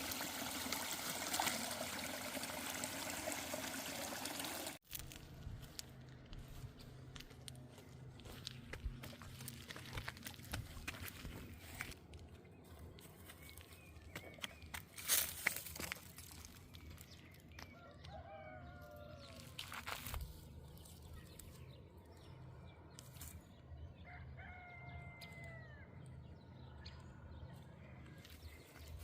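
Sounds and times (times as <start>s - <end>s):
rooster crowing faintly: 17.8s - 19.4s.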